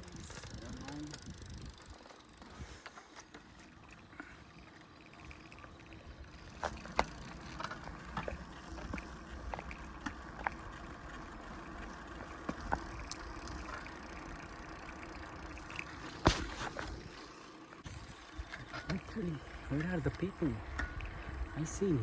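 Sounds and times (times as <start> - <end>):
tyres and wind rumbling: 0.0 - 4.1, 17.9 - 22.0
bicycle clicks and rattles: 0.0 - 22.0.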